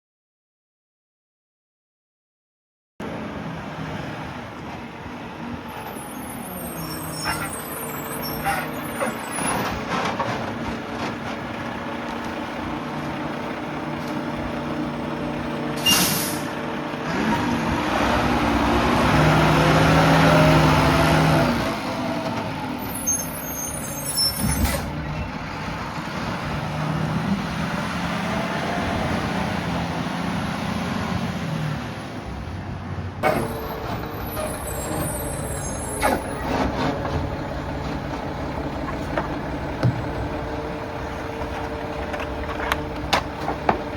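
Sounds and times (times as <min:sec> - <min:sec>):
diesel engine running: 0:03.0 - 0:31.3, 0:32.2 - 0:43.9
air brake hiss: 0:15.8 - 0:16.6
hydraulic packer cycling: 0:33.2 - 0:35.0.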